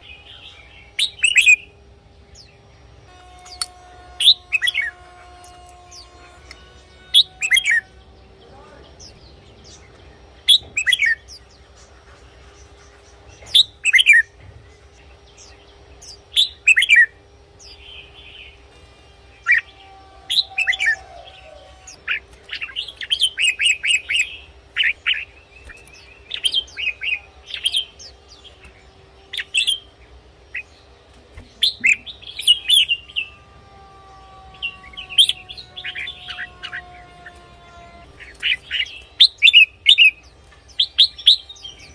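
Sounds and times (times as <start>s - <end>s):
bulbul singing whistled phrases: 0.0s - 1.7s, 10.4s - 11.4s, 13.4s - 14.3s, 16.0s - 18.5s.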